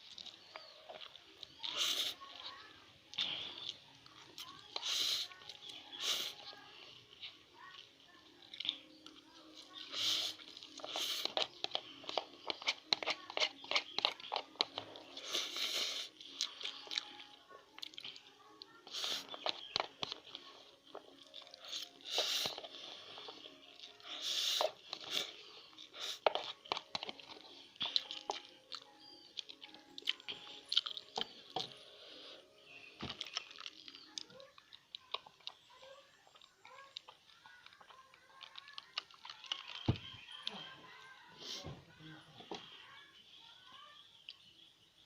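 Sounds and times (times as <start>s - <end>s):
wet chewing clicks: 0.0s - 31.8s, 32.8s - 40.5s
slurping noodles: 1.6s - 2.4s, 9.8s - 16.7s, 21.6s - 28.4s
wet chewing mouth clicks: 8.5s - 18.3s, 23.8s - 31.7s.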